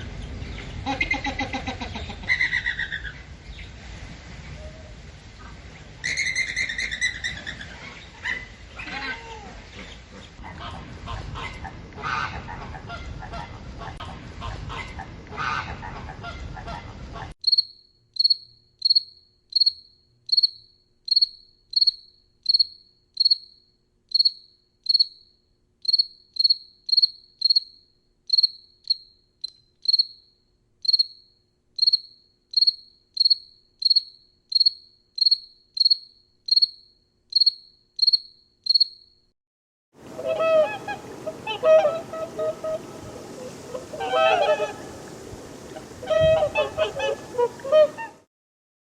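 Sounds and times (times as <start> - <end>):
cricket chirping: 17.4 - 39.3
low honking call: 40.0 - 48.2.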